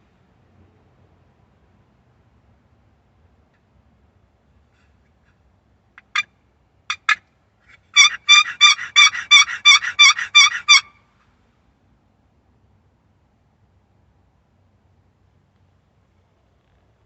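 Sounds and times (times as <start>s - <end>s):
turkey call hen yelps: 6.0s - 6.3s, 6.9s - 11.0s.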